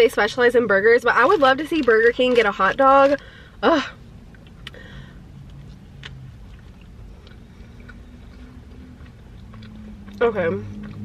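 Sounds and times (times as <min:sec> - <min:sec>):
low background hum: 0:00.0 - 0:11.0
person chewing food: 0:04.0 - 0:11.0.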